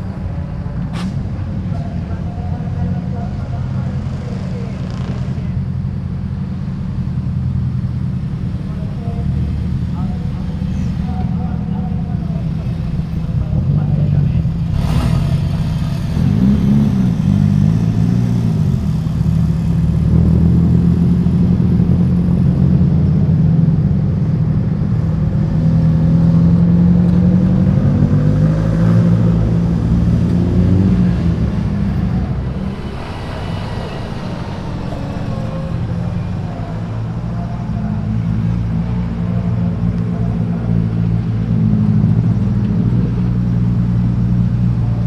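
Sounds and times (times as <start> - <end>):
car engines running: 0.0 - 45.0
engine throttle blips: 29.2 - 43.0.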